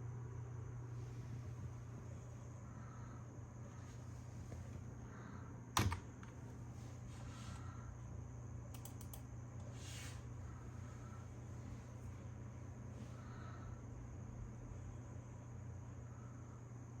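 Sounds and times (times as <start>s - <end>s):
steady low hum: 0.0s - 17.0s
sharp clicks: 8.7s - 9.3s.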